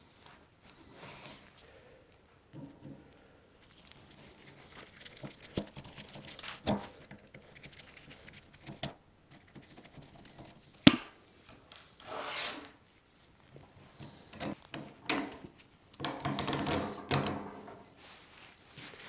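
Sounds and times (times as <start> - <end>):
short scrape: 12.0 - 12.8
knocks and clicks of parts: 14.0 - 17.8.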